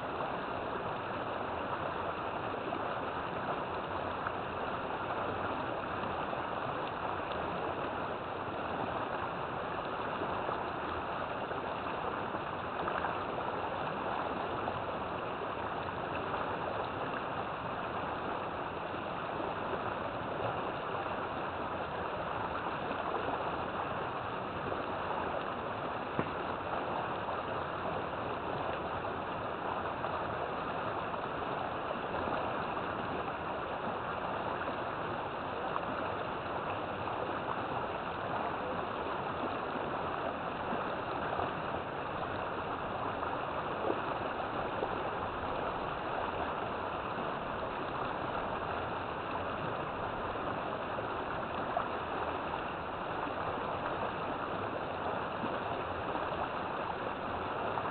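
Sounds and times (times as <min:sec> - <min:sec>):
river water rushing over rocks: 0:00.0 - 0:57.9.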